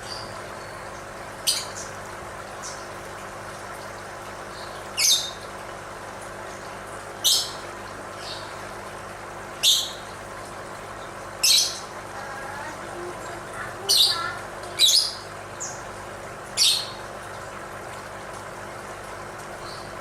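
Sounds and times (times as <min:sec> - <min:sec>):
lovebird squawking: 0:13.6 - 0:15.8.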